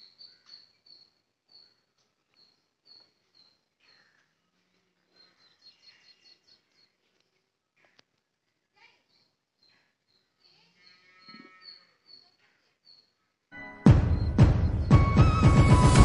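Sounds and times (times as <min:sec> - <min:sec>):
high bird chirps: 0:00.0 - 0:04.2, 0:09.1 - 0:13.2, 0:14.0 - 0:16.0
faint outdoor background noise: 0:00.0 - 0:13.8.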